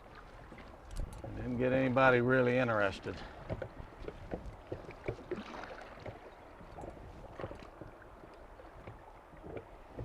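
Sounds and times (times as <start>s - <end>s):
water moving along a hull: 0.0s - 10.0s
light knocks from boat: 3.0s - 10.0s.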